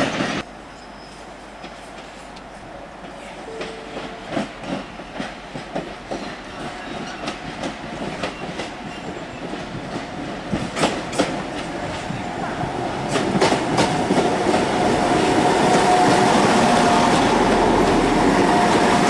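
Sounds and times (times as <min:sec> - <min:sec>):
train wheels clicking over rail joints: 0:01.6 - 0:12.2, 0:13.0 - 0:16.3.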